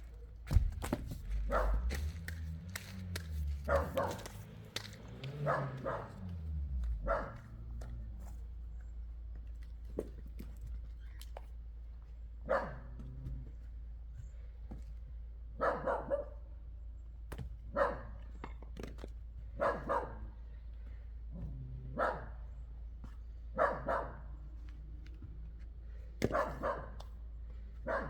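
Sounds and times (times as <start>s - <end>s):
dog barking: 1.3s - 2.2s, 3.5s - 7.9s, 12.4s - 13.2s, 15.6s - 16.5s, 17.7s - 18.3s, 19.6s - 20.4s, 21.8s - 22.6s, 23.5s - 24.5s, 26.2s - 27.1s, 27.8s - 28.0s.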